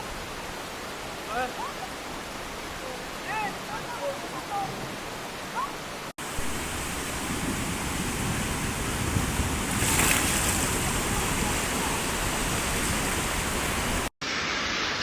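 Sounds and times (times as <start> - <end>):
floodwater rushing: 0.0 - 15.0
wind noise on microphone: 6.4 - 14.1.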